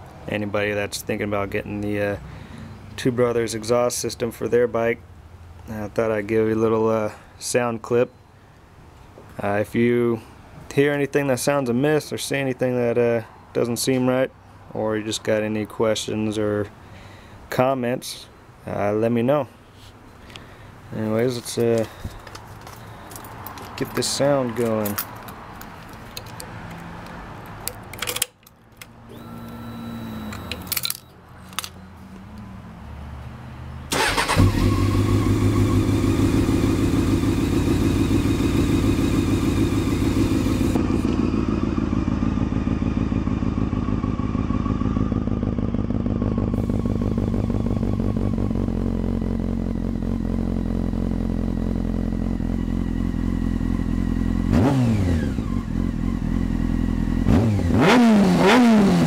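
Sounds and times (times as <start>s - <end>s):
clicks: 21.6s - 32.5s
motorcycle engine idling and revving: 28.8s - 59.0s
brief whir: 29.1s - 31.1s.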